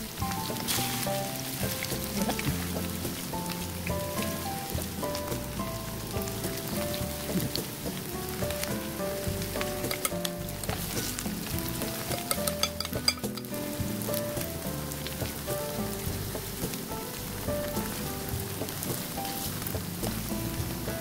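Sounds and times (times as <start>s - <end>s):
background music: 0.0s - 21.0s
sweet potato sizzling in oil: 0.0s - 21.0s
turner clicking against pan: 9.6s - 10.4s, 11.8s - 13.6s.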